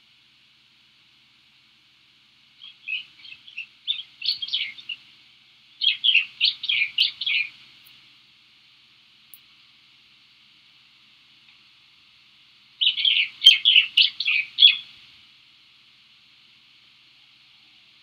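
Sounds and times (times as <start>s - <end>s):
steady high hiss: 0.0s - 18.0s
bird chirping: 2.6s - 5.0s, 5.8s - 7.6s, 12.8s - 14.9s.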